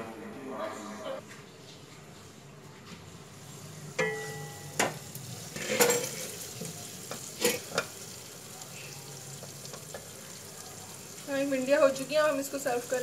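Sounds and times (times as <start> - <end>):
okra sizzling in oil: 3.2 - 13.0
glass pan lid clinking: 4.0 - 5.0.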